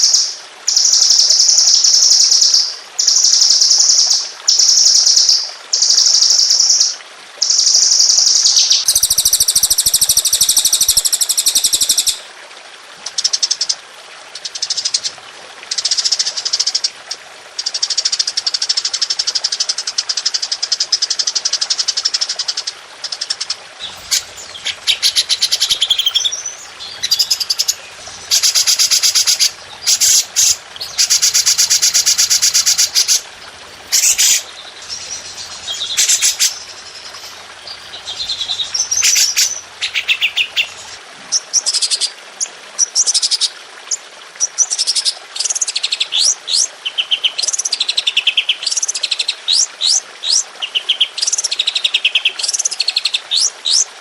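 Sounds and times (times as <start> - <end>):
songbirds singing rapid trills: 7.5 - 12.2, 23.2 - 41.0.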